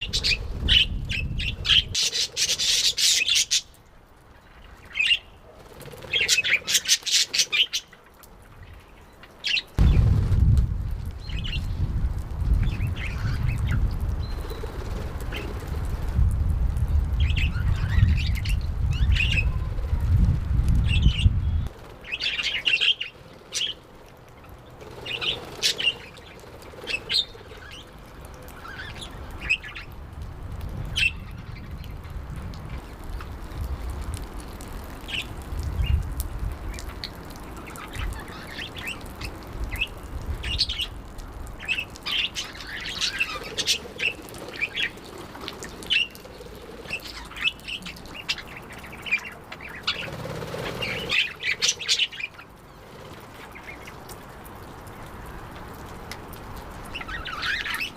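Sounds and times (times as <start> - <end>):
low rumble: 9.8 - 13.3.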